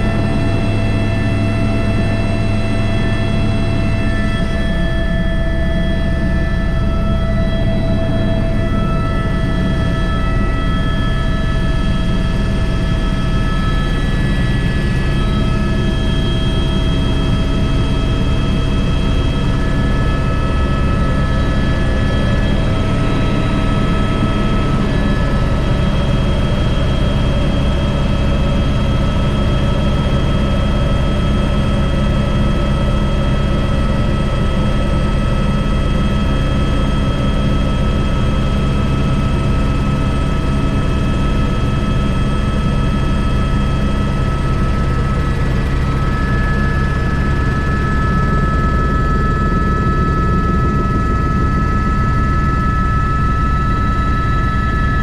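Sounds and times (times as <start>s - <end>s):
helicopter low drone: 0.0s - 55.0s
high turbine whine: 0.0s - 55.0s.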